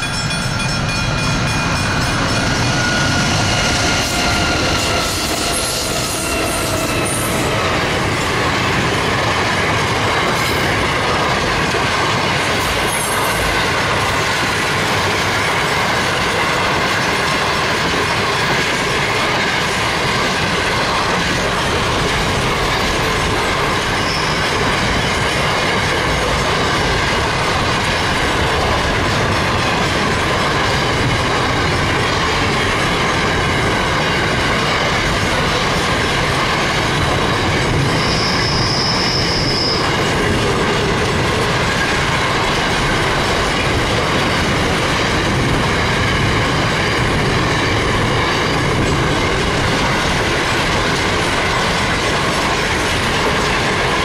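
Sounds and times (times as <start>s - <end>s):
freight train wheels rumbling: 0.0s - 54.0s
high-pitched wheel squeal: 23.9s - 24.7s, 37.7s - 40.1s.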